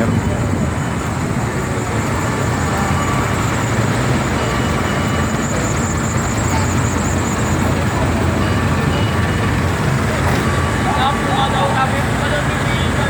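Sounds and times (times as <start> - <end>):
street traffic noise: 0.0 - 13.0
vehicle engines rumbling: 0.0 - 13.0.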